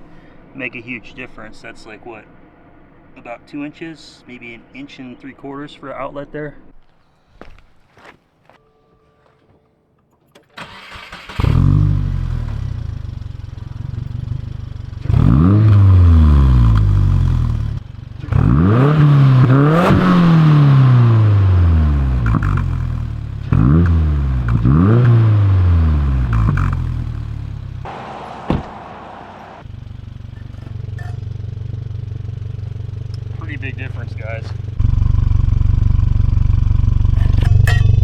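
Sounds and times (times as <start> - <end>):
car engine starting and revving: 10.6 - 38.0.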